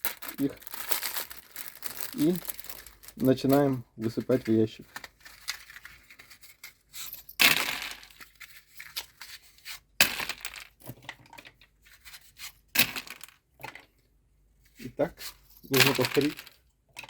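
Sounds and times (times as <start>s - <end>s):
matchsticks pouring into a pile: 0.0s - 3.4s.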